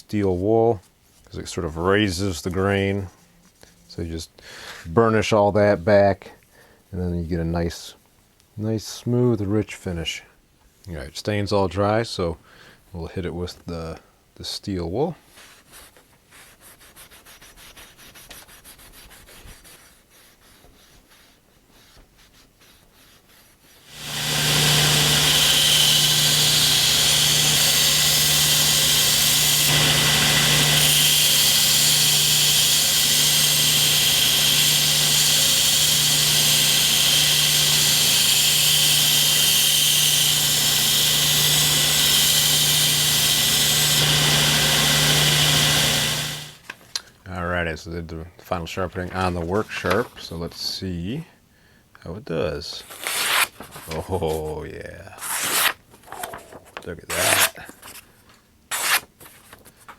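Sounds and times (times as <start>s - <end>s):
steel wool rubbing wood: 23.8s - 46.6s
belt sharpener grinding knife: 23.9s - 46.6s.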